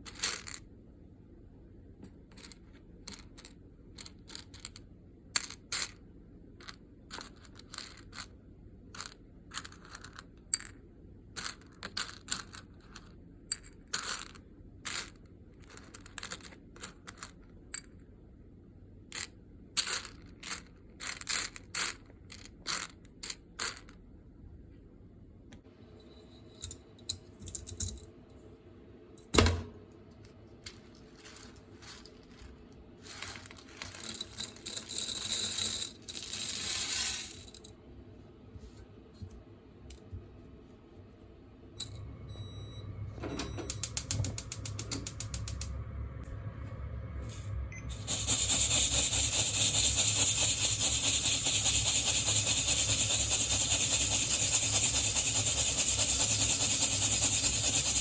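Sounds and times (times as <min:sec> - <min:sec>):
beans pouring: 0:30.6 - 0:37.5, 0:47.9 - 0:52.8
coffee beans clicking: 0:30.7 - 0:37.6.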